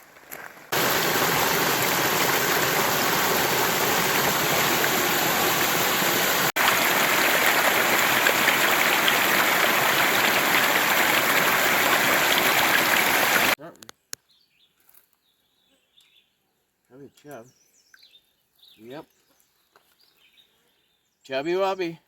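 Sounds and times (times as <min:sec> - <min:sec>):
river water rushing: 0:00.7 - 0:13.6.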